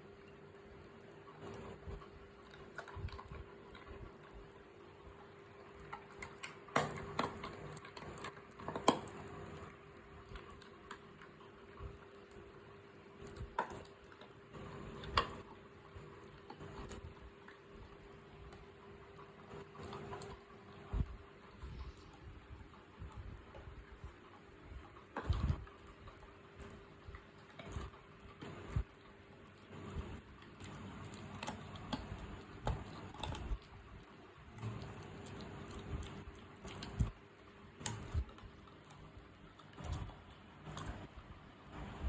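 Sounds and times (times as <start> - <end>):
animal chewing with crunches: 0.0 - 42.0.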